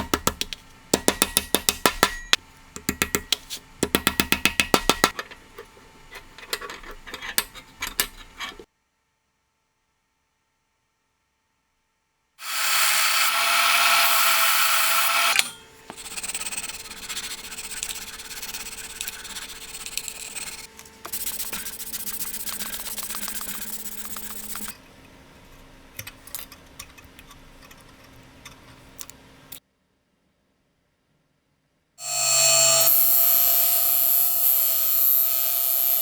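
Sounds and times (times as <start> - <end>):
handling taps and clicks: 0.0 - 8.6, 25.5 - 29.6
scraping against workpiece: 5.0 - 8.7
power tool cutting or grinding: 12.4 - 24.8, 32.0 - 36.0
motor hum: 12.4 - 29.6.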